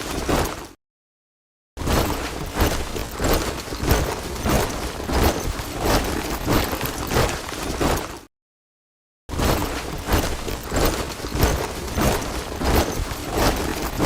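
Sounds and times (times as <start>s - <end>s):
soldiers marching in boots: 1.9s - 8.3s, 9.4s - 14.0s.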